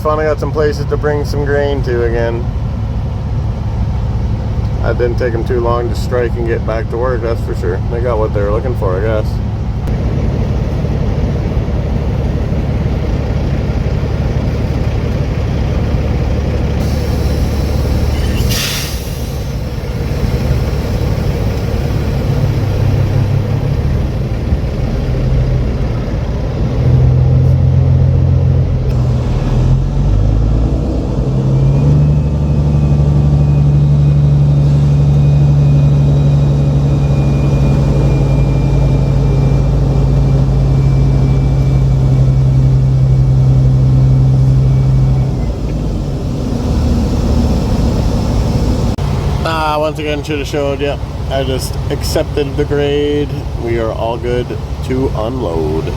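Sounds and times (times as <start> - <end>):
diesel truck engine rumbling: 0.0 - 55.9
air hiss: 16.8 - 22.1.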